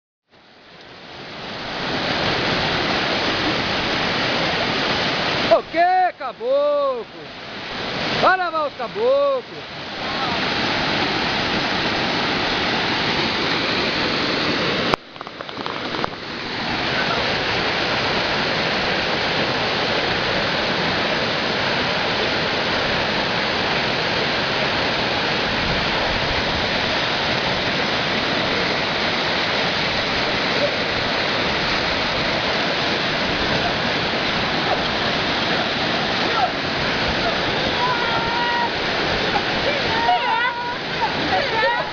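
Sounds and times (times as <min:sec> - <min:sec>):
waterfall roaring: 0:00.4 - 0:41.9.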